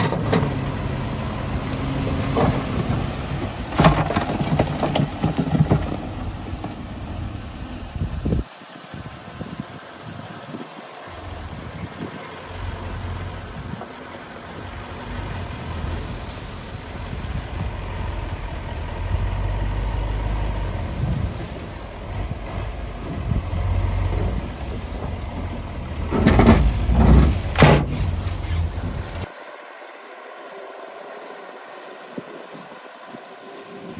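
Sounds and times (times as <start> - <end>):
diesel engine rumbling: 0.0 - 8.4, 11.1 - 29.4.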